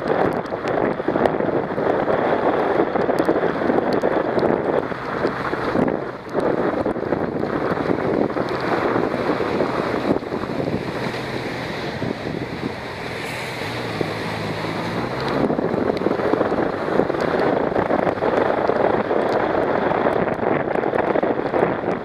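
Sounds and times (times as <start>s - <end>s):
motorcycle engine hum: 0.0s - 22.0s
wind rushing over microphone: 0.0s - 22.0s.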